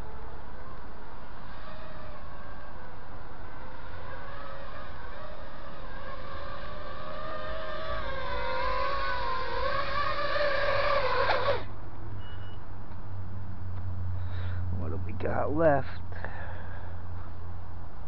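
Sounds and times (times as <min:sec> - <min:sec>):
quadcopter motors whining: 0:00.0 - 0:12.7.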